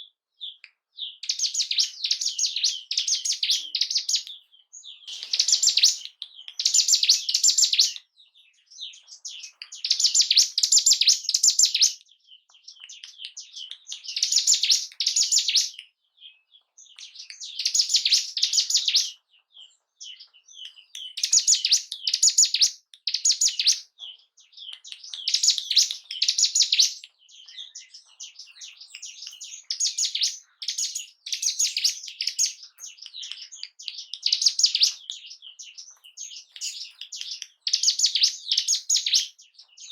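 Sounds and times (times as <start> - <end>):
bird trilling song: 0.0 - 39.9
bird chattering: 5.1 - 8.0.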